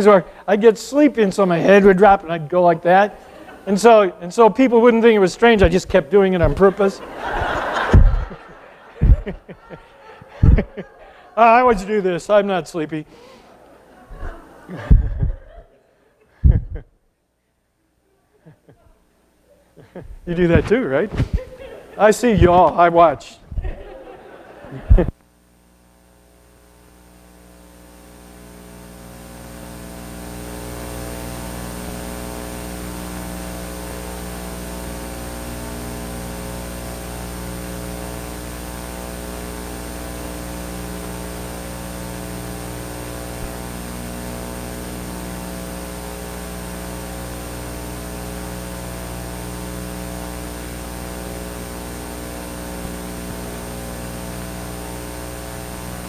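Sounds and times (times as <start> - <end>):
electrical mains hum: 0.0 - 17.0, 17.8 - 56.0.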